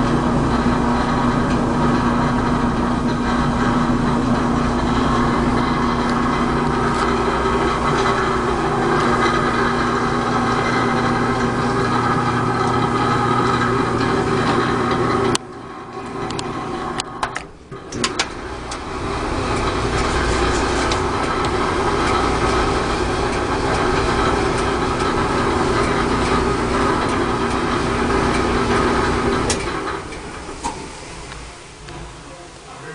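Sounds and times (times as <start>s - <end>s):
clothes dryer running with rattle: 0.0s - 32.9s
dryer clicks: 15.3s - 32.1s.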